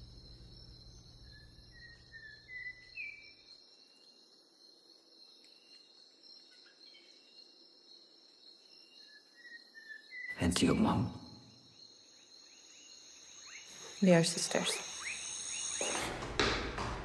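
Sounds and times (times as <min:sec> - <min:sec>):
low hum: 0:00.0 - 0:02.5
crickets trilling: 0:00.0 - 0:16.8.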